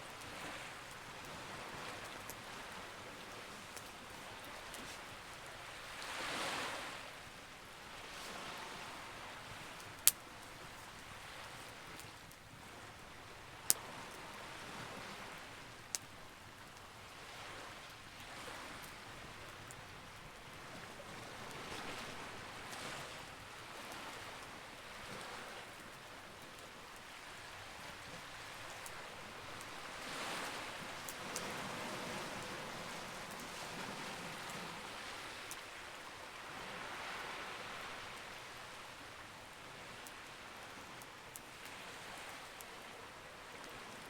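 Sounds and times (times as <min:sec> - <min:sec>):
sea waves washing in: 0:00.0 - 0:12.0, 0:27.2 - 0:39.2
campfire popping: 0:09.4 - 0:14.2, 0:28.2 - 0:33.6.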